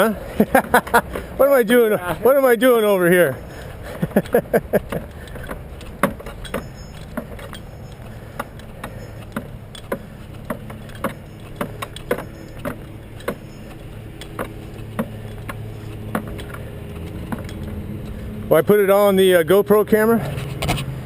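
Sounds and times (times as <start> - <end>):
engine humming: 0.0 - 21.0
gear clicking and knocking: 0.4 - 1.4, 3.5 - 19.1.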